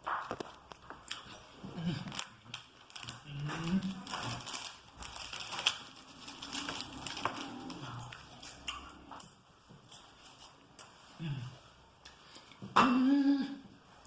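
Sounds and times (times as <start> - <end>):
crunching and chewing wafer: 0.2 - 10.6
person humming: 3.2 - 4.4, 11.2 - 11.7, 12.8 - 13.7.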